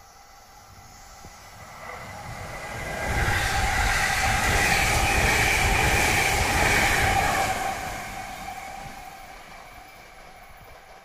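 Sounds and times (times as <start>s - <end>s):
train wheels rumbling on rail: 0.1s - 11.0s.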